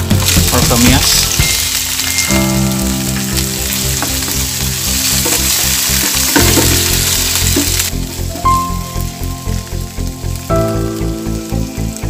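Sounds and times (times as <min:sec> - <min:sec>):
background music: 0:00.0 - 0:12.0
food sizzling in oil: 0:00.0 - 0:12.0.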